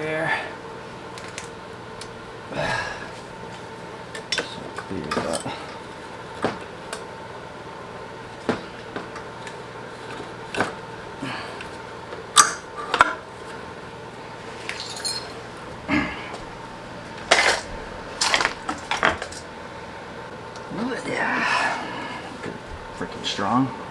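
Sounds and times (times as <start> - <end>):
metal bracket clinking and knocking: 14.6 - 15.5.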